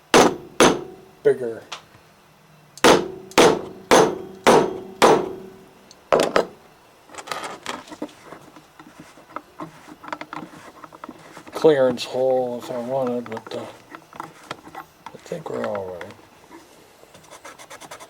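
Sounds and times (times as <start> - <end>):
hammer striking: 0.2 - 1.0, 2.8 - 5.6
small parts clicking and rattling: 7.1 - 16.2.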